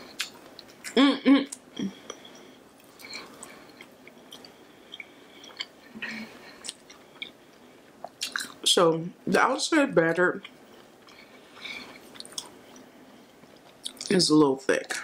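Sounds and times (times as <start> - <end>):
chewing fried food: 0.0 - 1.0, 1.6 - 8.6, 10.4 - 14.1
closed-mouth hum: 0.0 - 15.0.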